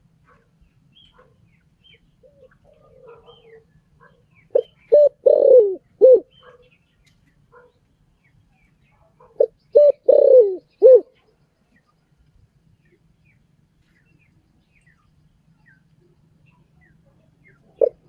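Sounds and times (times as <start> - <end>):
small bird chirping: 0.7 - 5.4
dove cooing: 2.2 - 6.6, 9.4 - 11.3, 17.4 - 18.0.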